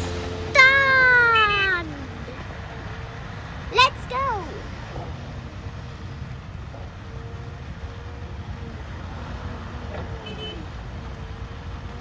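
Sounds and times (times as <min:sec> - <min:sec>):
excavator diesel engine rumbling: 0:00.0 - 0:12.0.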